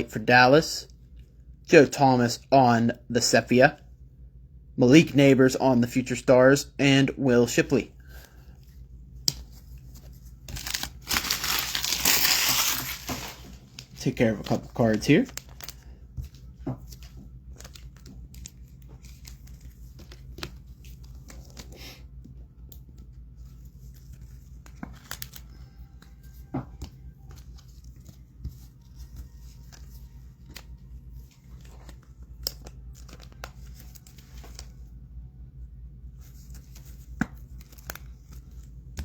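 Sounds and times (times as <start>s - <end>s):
plastic sleeves crinkling: 9.3s - 21.7s.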